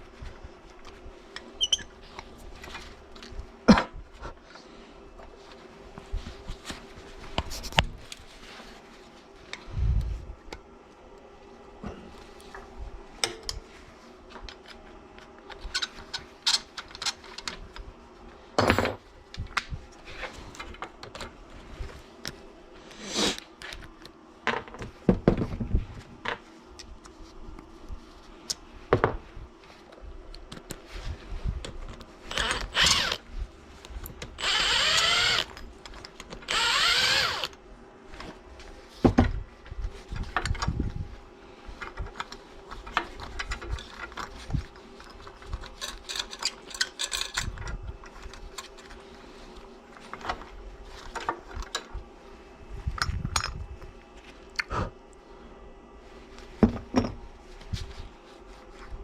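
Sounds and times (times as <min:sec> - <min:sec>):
small power tool running: 0:32.3 - 0:33.2, 0:34.4 - 0:35.6, 0:36.5 - 0:37.6
tools and metal parts clicking: 0:45.1 - 0:48.8.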